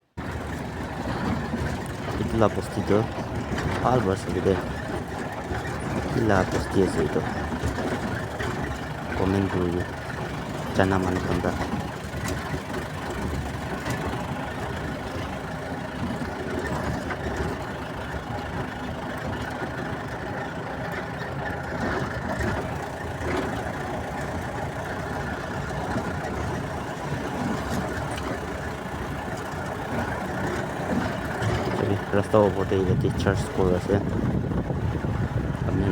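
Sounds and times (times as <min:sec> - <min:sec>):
road noise: 0:00.0 - 0:35.9
vehicle engine rumble: 0:00.0 - 0:35.9.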